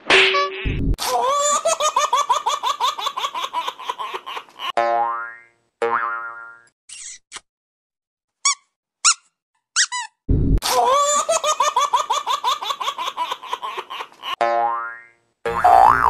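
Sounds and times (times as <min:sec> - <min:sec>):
cartoon high-pitched squeaks: 0:06.9 - 0:07.4, 0:08.4 - 0:10.2.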